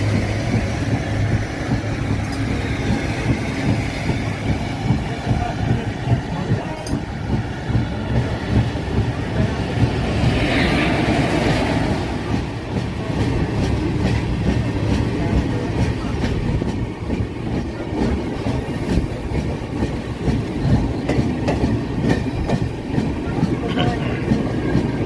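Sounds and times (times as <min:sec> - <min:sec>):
train coaches rumbling on track: 0:00.0 - 0:25.0.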